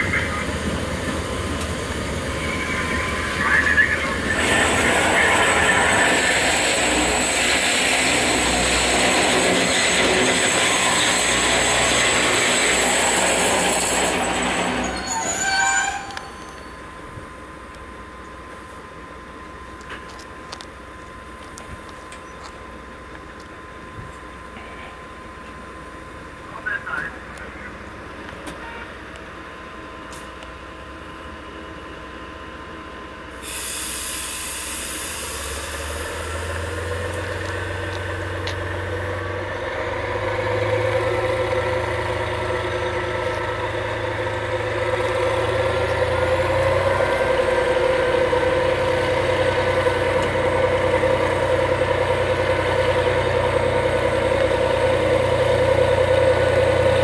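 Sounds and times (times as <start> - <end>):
locomotive drive humming: 0.0 - 57.0.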